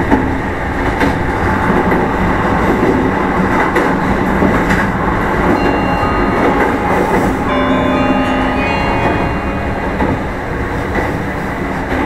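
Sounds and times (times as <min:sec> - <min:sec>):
rail-joint clatter: 0:00.0 - 0:12.0
train wheel-on-rail rumble: 0:00.0 - 0:12.0
ringing tones: 0:05.5 - 0:12.0.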